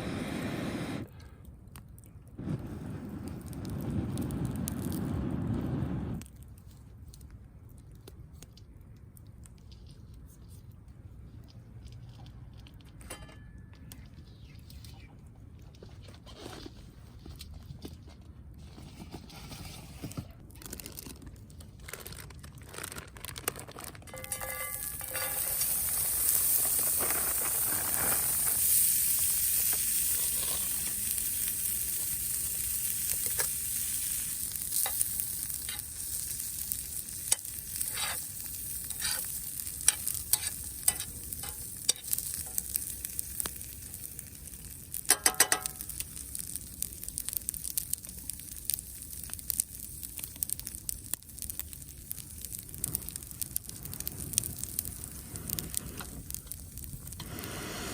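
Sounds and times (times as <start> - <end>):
food sizzling in frying pan: 24.1 - 57.9.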